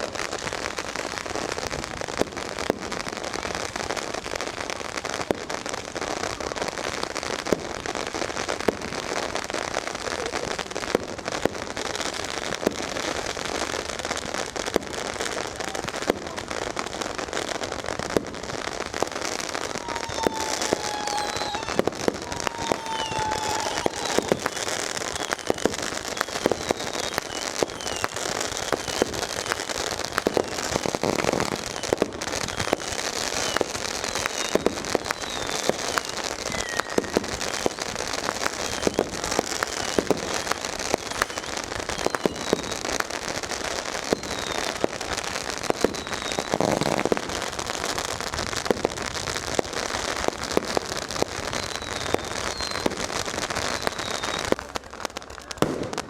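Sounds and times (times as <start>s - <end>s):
firecrackers crackling: 0.0s - 56.0s
firework bangs: 6.8s - 56.0s
firework whistles: 18.6s - 48.1s, 50.0s - 54.7s.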